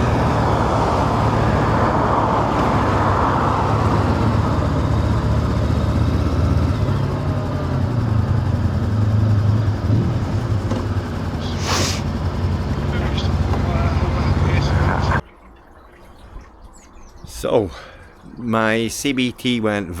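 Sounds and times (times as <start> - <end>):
motorcycle engine running: 0.0 - 15.2
tyres on wet road: 0.0 - 15.2
wind: 0.0 - 20.0
short hiss: 11.5 - 12.0.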